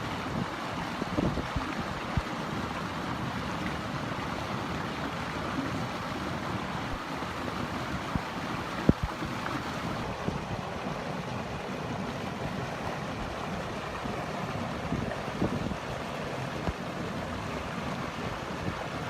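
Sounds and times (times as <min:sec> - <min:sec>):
rushing water: 0:00.0 - 0:19.0
wind buffeting microphone: 0:00.2 - 0:02.3, 0:14.8 - 0:16.0.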